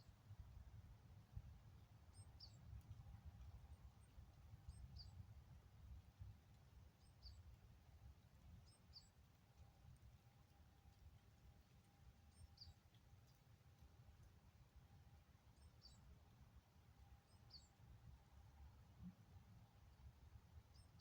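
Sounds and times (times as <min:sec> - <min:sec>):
small bird chirping: 0:02.1 - 0:02.7, 0:04.0 - 0:05.2, 0:08.6 - 0:09.2, 0:12.3 - 0:13.4, 0:15.6 - 0:16.1, 0:17.2 - 0:17.8, 0:20.7 - 0:21.0.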